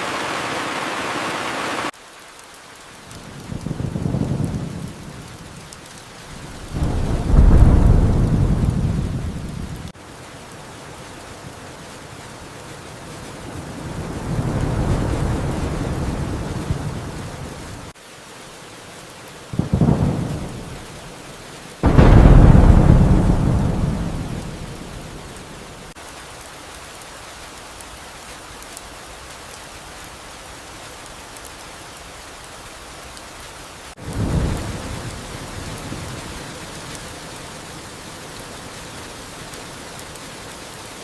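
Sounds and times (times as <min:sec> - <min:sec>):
steady rain: 0:00.0 - 0:41.0
thunder rumbling and cracking: 0:03.1 - 0:17.9, 0:19.6 - 0:21.0, 0:21.8 - 0:26.0, 0:34.0 - 0:37.0.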